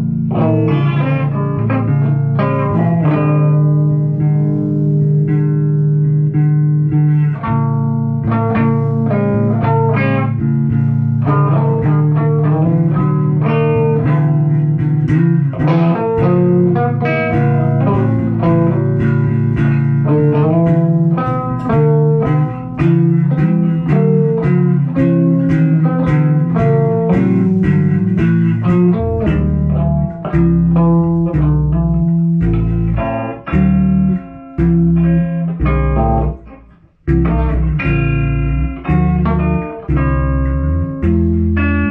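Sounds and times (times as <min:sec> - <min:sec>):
bass guitar: 0:00.0 - 0:41.9
guitar plucking quick notes: 0:00.0 - 0:41.9.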